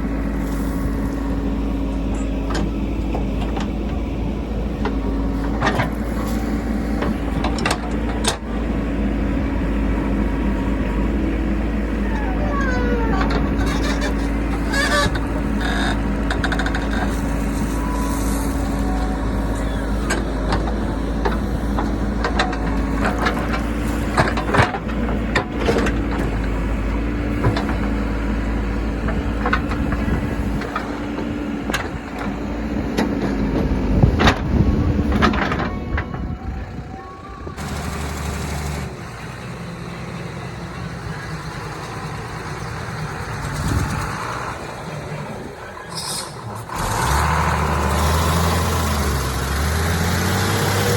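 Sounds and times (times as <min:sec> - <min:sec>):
diesel engine running: 0:00.0 - 0:50.9
knocks and clatters: 0:12.5 - 0:17.6, 0:20.0 - 0:26.6, 0:27.3 - 0:28.1.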